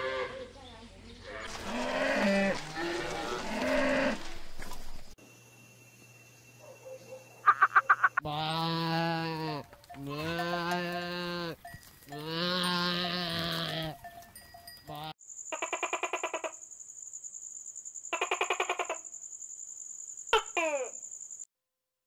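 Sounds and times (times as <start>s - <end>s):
goat bleating: 8.2s - 14.0s.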